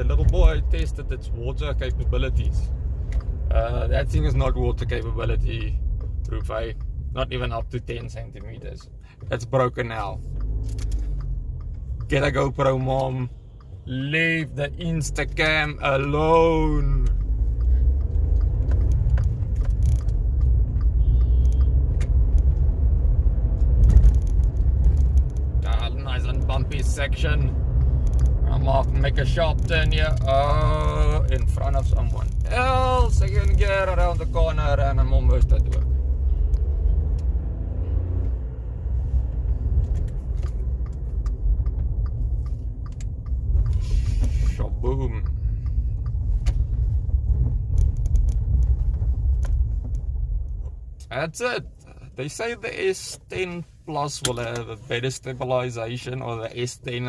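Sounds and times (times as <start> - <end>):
sharp clicks and knocks: 0.0 - 13.8, 14.4 - 52.4
car cabin road rumble: 0.0 - 57.0.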